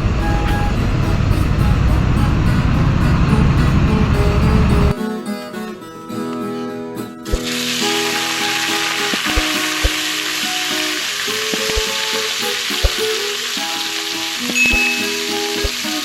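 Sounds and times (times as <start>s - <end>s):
meat sizzling in oil: 7.4s - 16.0s.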